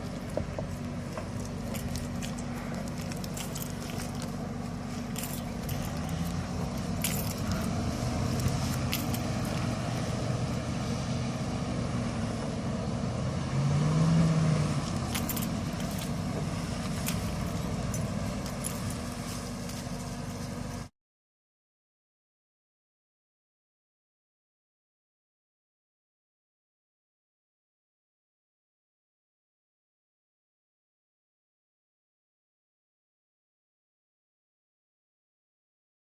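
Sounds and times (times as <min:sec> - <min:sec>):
off-road vehicle engine running: 0:00.0 - 0:20.9.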